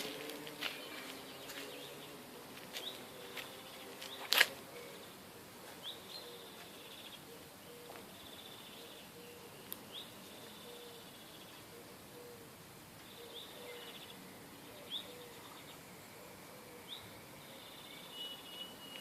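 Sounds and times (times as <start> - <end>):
high chirping calls: 16.8 - 19.0.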